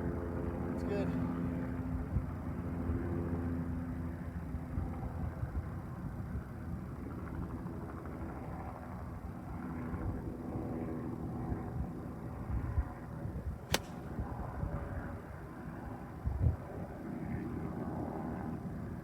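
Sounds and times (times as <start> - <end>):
golf iron striking ball: 13.7 - 14.2.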